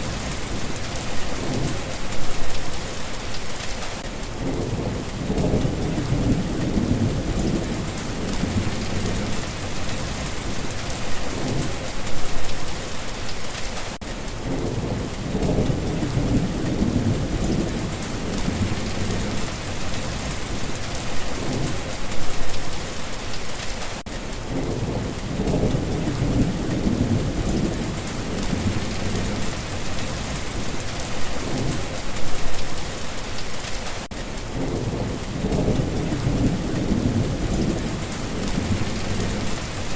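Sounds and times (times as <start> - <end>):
thunder rumbling: 0.0 - 2.8, 4.3 - 12.8, 14.4 - 22.8, 24.4 - 32.7, 34.4 - 39.9
heavy rain hissing: 0.0 - 39.9.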